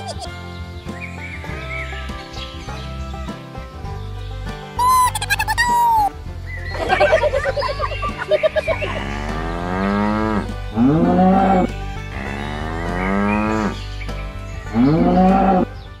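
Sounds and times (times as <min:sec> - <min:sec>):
cattle mooing: 0:08.7 - 0:13.8, 0:14.8 - 0:15.7.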